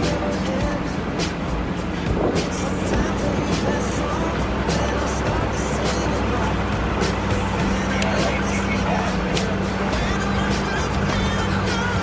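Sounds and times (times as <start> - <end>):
music playing: 0.0 - 12.0
vehicle engine running: 0.0 - 12.0.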